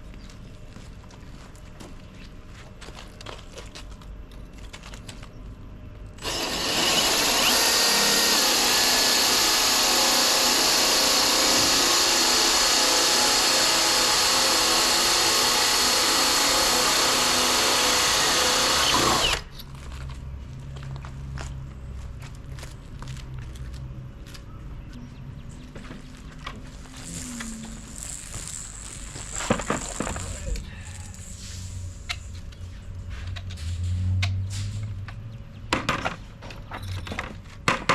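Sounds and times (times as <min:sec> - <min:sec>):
power drill drilling into brick: 0:06.2 - 0:19.5, 0:27.0 - 0:30.6.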